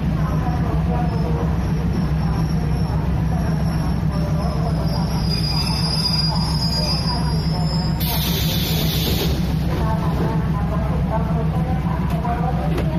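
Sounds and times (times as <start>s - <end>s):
train rumble: 0.0s - 12.9s
high thin wheel squeal: 1.1s - 9.2s.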